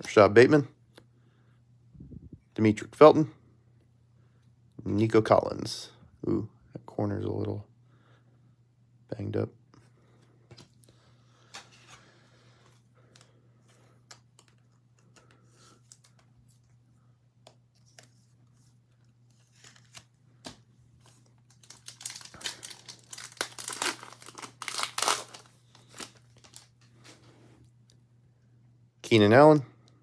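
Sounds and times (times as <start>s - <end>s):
card pack wrapper tearing: 21.1s - 26.8s.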